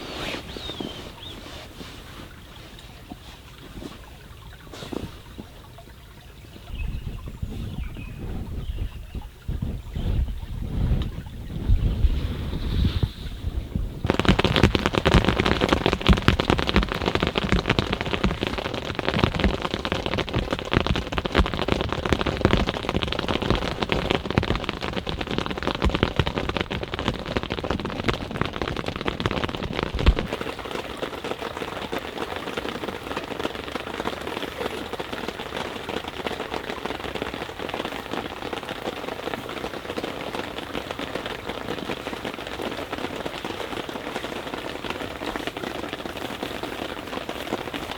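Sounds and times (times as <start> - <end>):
rain pattering: 0.0 - 47.9
campfire crackling: 12.4 - 47.9.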